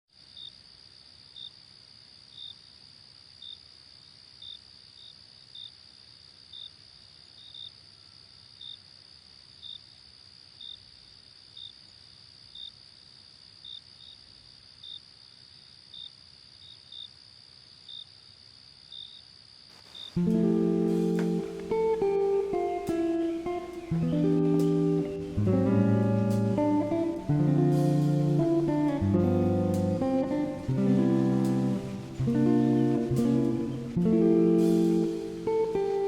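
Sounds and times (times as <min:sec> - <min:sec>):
insect chirp: 0:00.1 - 0:36.0
insect trill: 0:00.2 - 0:36.0
acoustic guitar music: 0:20.2 - 0:36.0.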